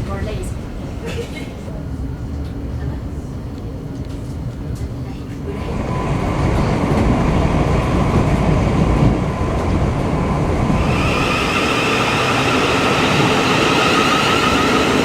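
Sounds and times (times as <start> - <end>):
moving vehicle rumble: 4.4 - 15.0.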